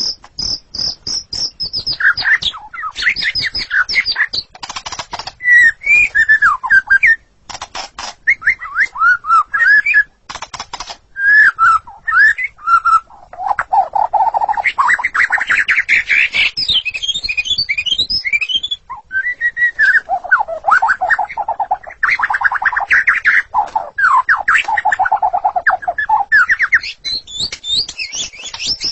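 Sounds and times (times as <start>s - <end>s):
bird singing whistled song: 0.0s - 4.6s, 5.2s - 7.3s, 8.2s - 10.2s, 11.2s - 28.9s
sharp rapid bird clicks: 0.0s - 6.5s, 7.5s - 9.0s, 9.6s - 11.1s, 13.4s - 18.7s, 20.9s - 28.9s.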